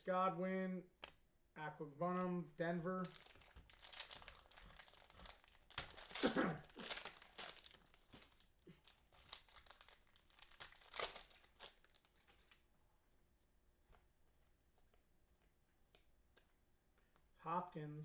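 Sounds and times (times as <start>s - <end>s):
cellophane wrapper crinkling: 2.9s - 12.6s.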